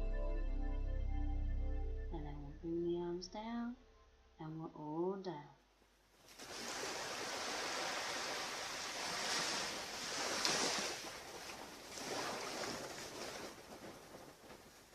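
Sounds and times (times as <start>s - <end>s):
ocean surf washing onto beach: 6.3s - 14.9s.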